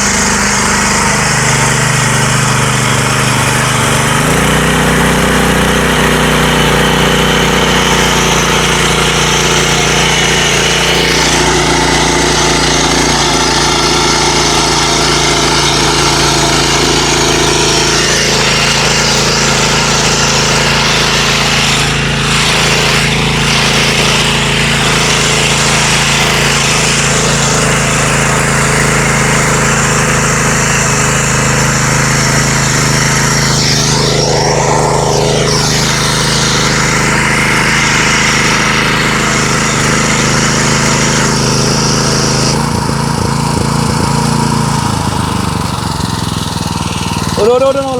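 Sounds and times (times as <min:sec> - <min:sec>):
petrol engine running: 0:00.0 - 0:47.9.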